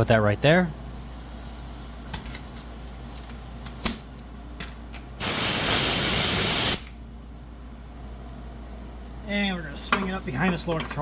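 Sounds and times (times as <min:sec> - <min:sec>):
loud steady hiss: 0:05.2 - 0:06.9.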